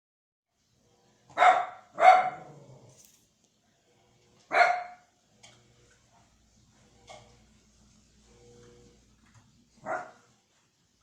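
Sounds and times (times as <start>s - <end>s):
dog barking: 1.3s - 2.6s, 4.5s - 5.1s, 9.8s - 10.3s.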